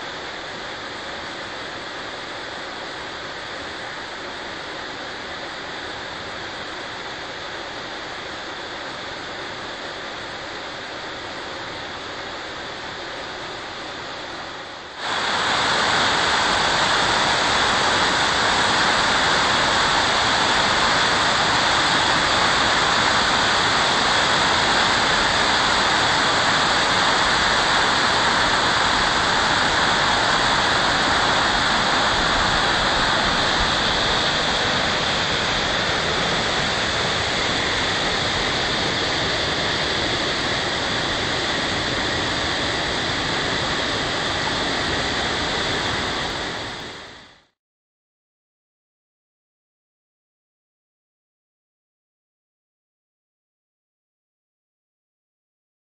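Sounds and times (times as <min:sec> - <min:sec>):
water rushing over rocks: 0:14.8 - 0:47.0.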